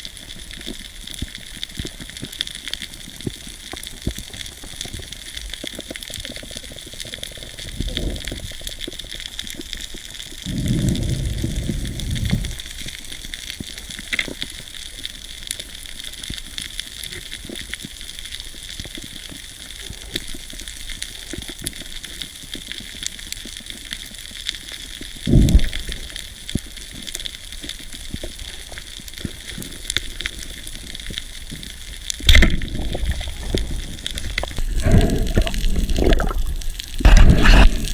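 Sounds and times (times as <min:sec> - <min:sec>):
underwater crackling hiss: 0:00.0 - 0:37.9
low rushes of water: 0:10.3 - 0:13.0, 0:31.8 - 0:37.9.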